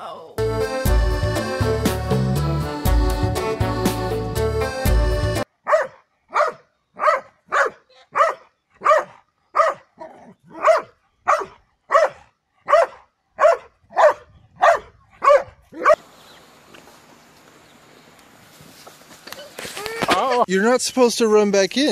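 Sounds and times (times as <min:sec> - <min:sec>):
dog barking: 0:05.6 - 0:16.0.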